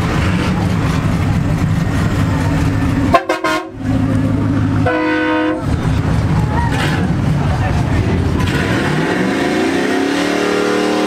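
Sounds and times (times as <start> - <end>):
vehicle engines rumbling: 0.0 - 11.0
vehicle horn honking: 3.1 - 3.8, 4.8 - 5.7.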